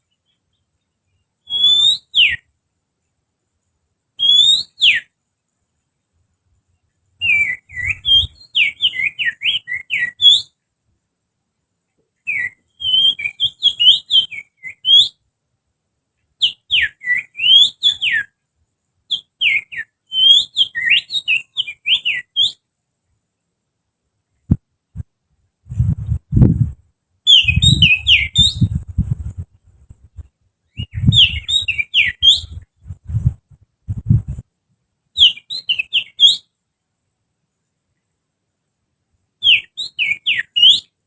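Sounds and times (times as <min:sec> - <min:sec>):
low rumbling: 0:24.5 - 0:26.8.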